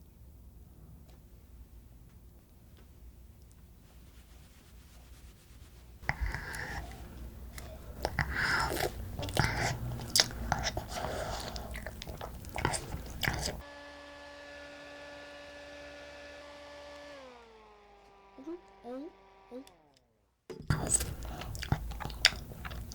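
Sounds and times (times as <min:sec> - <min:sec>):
chewing noodles with wet clicks: 0:06.0 - 0:13.6, 0:20.7 - 0:22.9.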